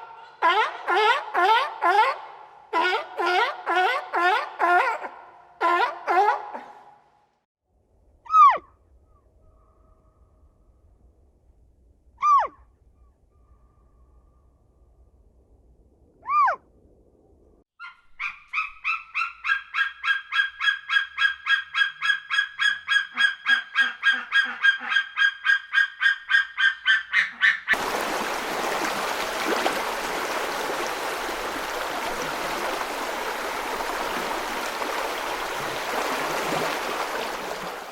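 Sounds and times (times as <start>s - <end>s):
bird honking: 0.0s - 2.2s, 2.8s - 6.7s.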